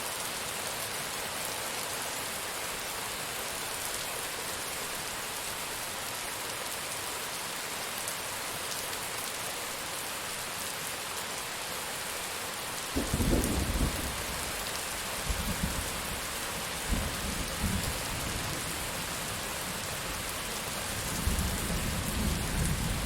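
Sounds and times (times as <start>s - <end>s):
heavy rain pattering: 12.8s - 23.0s.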